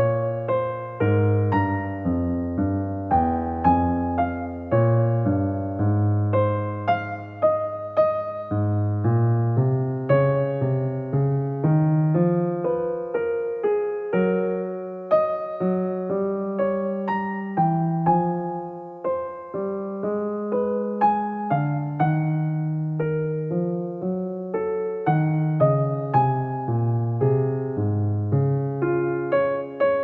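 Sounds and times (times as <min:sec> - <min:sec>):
gentle piano music: 0:00.0 - 0:30.0.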